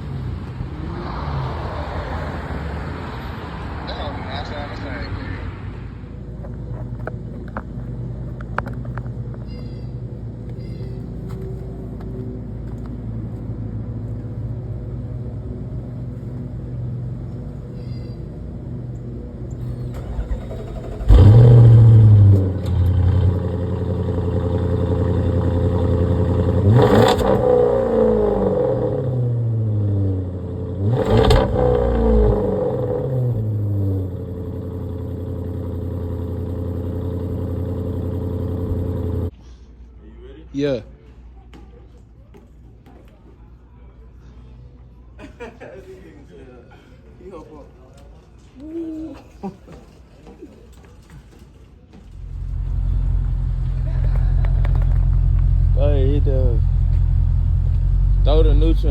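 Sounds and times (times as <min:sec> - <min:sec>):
car engine idling and revving: 0:00.0 - 0:17.8, 0:18.5 - 0:39.3, 0:52.1 - 0:58.9.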